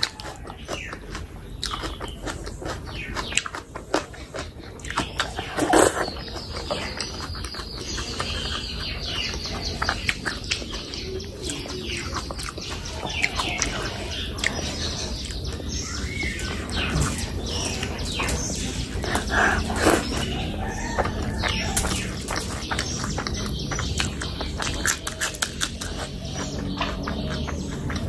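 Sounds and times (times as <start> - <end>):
close chewing with lip smacks: 0.0 - 28.0.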